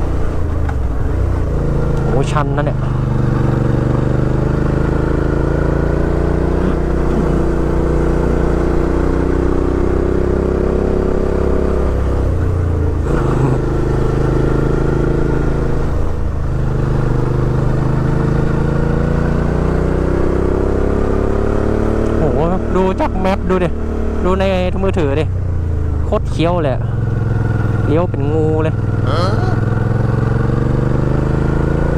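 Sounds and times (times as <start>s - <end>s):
motorcycle engine under load: 0.0s - 23.0s.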